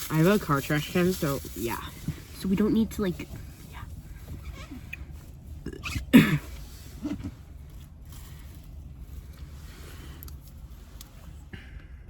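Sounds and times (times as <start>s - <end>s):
low hum inside car cabin: 0.0s - 12.0s.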